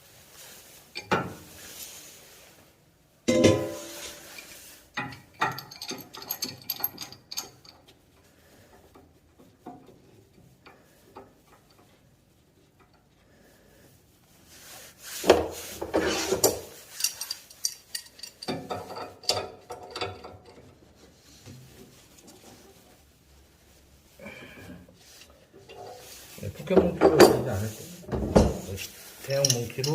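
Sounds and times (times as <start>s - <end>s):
wrench clicking and scraping metal: 3.6s - 7.9s, 16.0s - 20.7s, 29.2s - 29.9s.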